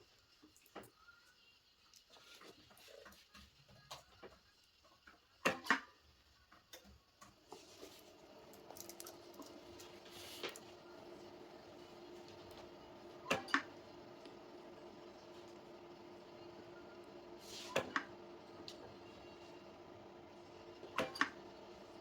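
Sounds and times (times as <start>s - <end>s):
small parts and tools clicking: 8.6s - 9.6s.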